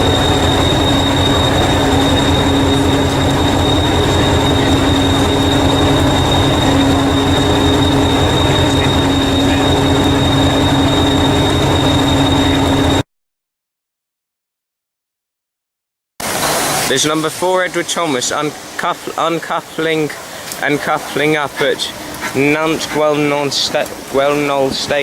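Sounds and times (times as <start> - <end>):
high-pitched whine: 0.0 - 13.0
train rumbling: 0.0 - 13.0, 16.2 - 25.0.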